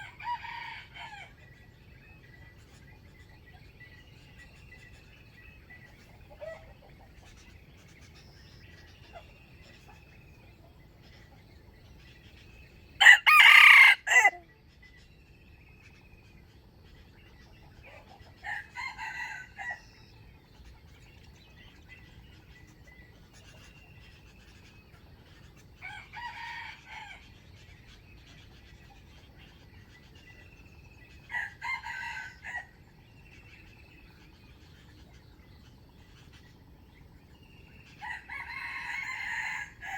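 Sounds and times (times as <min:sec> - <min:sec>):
roosters crowing: 0:13.0 - 0:14.4, 0:18.4 - 0:19.8, 0:25.8 - 0:27.3, 0:31.3 - 0:32.7, 0:38.0 - 0:39.9.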